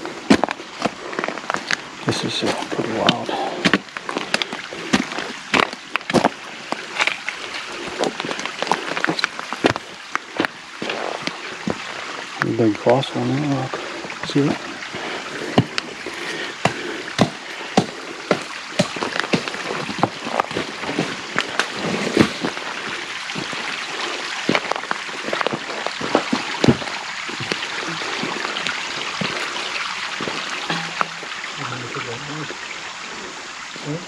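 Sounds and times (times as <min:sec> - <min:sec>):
creek water trickling over stone: 0:00.0 - 0:34.0
slate clicking underfoot: 0:15.5 - 0:22.6.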